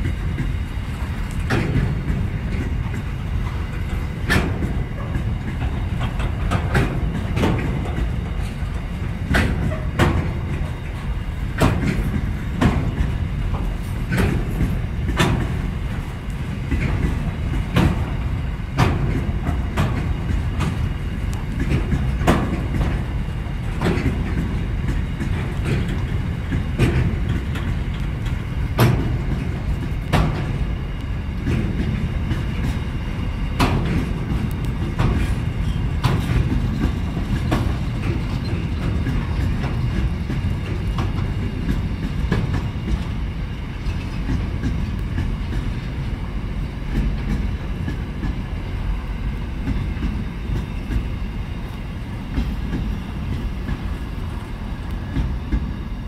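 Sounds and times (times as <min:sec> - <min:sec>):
wheel clicks on rail joints: 0:00.0 - 0:55.9
freight train wagons rumbling: 0:00.0 - 0:56.0.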